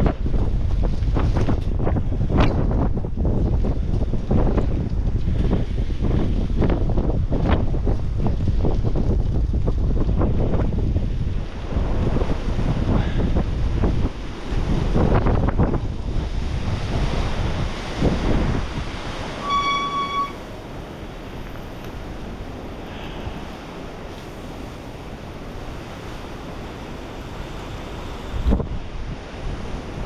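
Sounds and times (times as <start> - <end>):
wind rushing over microphone: 0.0 - 30.0
short high beep: 19.4 - 20.4.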